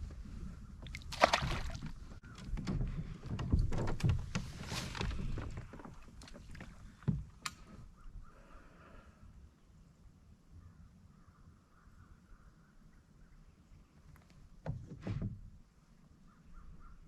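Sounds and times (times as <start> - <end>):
gear clunking and knocking: 2.3 - 7.3.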